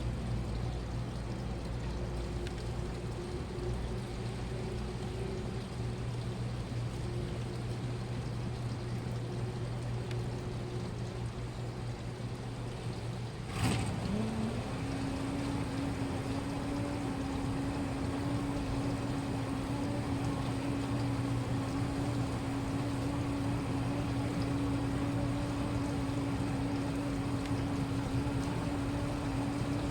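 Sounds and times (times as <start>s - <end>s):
washing machine hum: 0.0s - 29.9s
click: 2.4s - 2.7s, 10.0s - 10.2s
motor starting: 13.4s - 29.9s.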